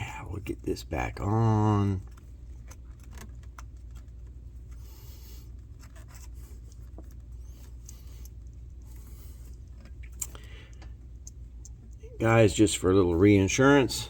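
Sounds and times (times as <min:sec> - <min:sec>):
steady low hum: 0:00.0 - 0:14.0
scratchy rubs: 0:02.0 - 0:10.0
scrapes and clicks of hand work: 0:02.0 - 0:12.0.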